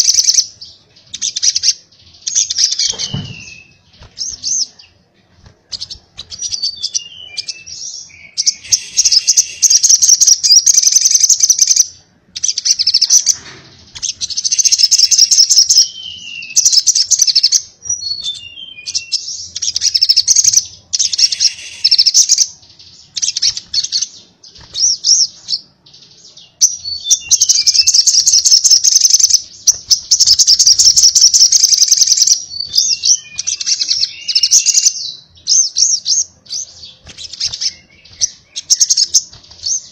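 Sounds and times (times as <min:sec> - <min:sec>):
sunbird singing chattering bursts: 0:05.7 - 0:11.8, 0:19.6 - 0:25.3, 0:26.6 - 0:36.3.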